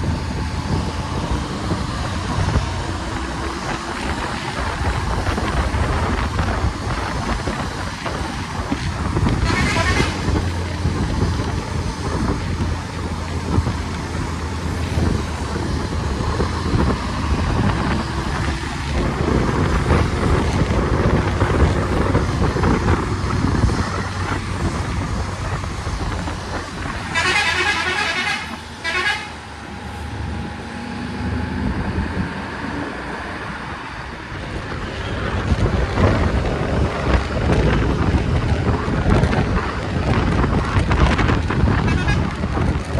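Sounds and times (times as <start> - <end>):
vehicle engine hum and road noise: 0.0 - 42.9
vehicle horn wavering: 9.4 - 10.2, 27.1 - 29.4, 41.8 - 42.3.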